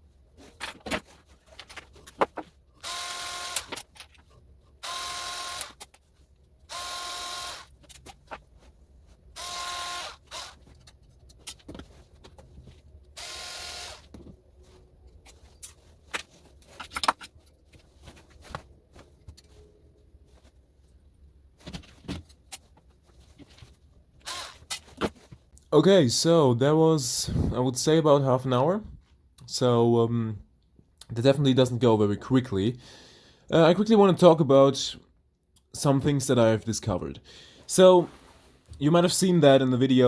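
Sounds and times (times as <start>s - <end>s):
cordless drill whining: 2.8s - 3.7s, 4.8s - 5.8s, 6.7s - 7.7s, 9.4s - 10.6s, 13.2s - 14.1s, 24.2s - 24.7s
clicks of plastic and metal parts: 15.1s - 17.7s.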